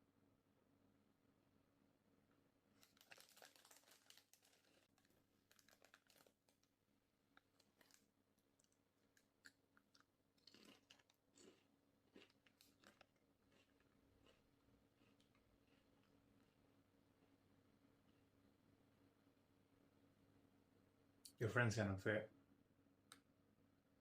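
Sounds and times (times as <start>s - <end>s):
crunchy chewing: 2.8s - 6.7s, 7.3s - 18.3s.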